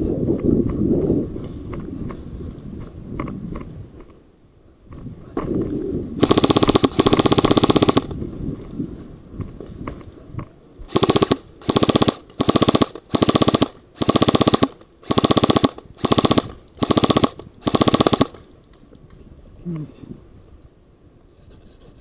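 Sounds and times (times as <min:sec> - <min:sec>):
airsoft gun firing bursts: 0:06.2 - 0:08.2, 0:10.9 - 0:18.4.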